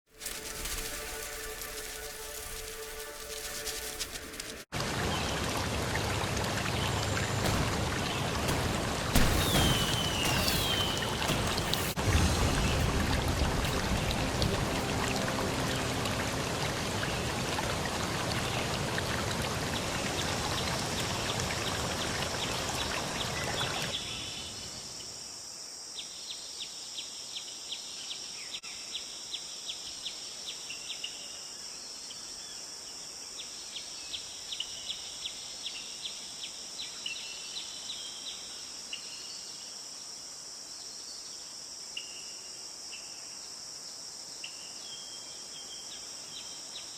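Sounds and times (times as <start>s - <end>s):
rushing water: 0.1s - 24.0s
quick repeated chirps: 8.5s - 12.9s.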